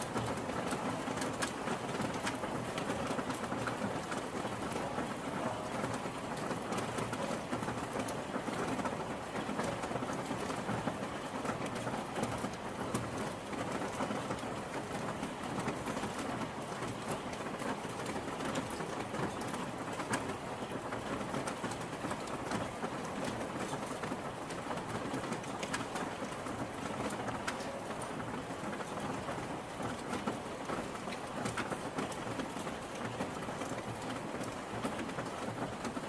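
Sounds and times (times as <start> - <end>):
raindrops ticking on surface: 0.0 - 36.0.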